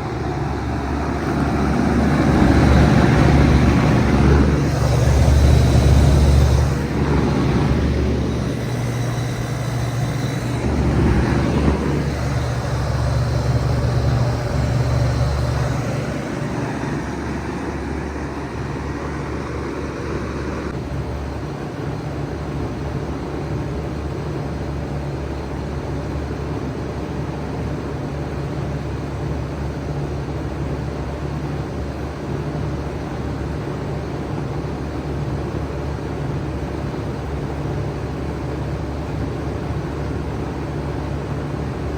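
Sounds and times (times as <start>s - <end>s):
compressor humming low: 0.0s - 20.8s
fan whooshing: 0.0s - 20.8s.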